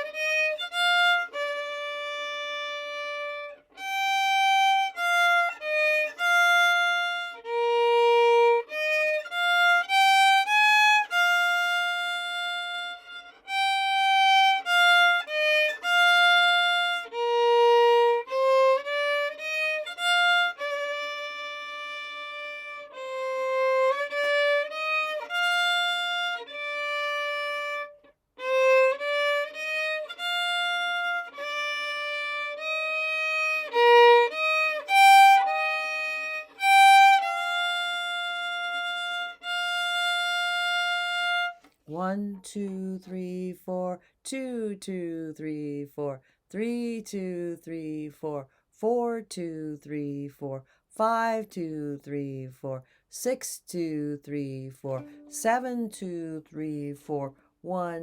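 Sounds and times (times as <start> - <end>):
solo violin slow melody: 0.0 - 41.8, 55.0 - 55.5.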